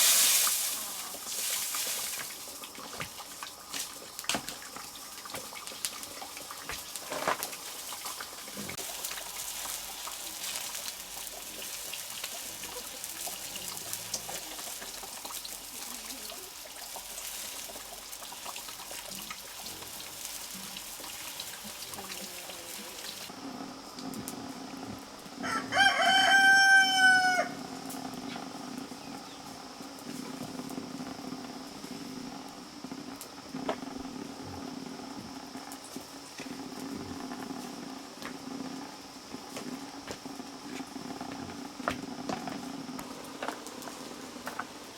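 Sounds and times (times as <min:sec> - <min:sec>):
even hiss: 0:00.0 - 0:25.6
rooster crowing: 0:25.4 - 0:27.8.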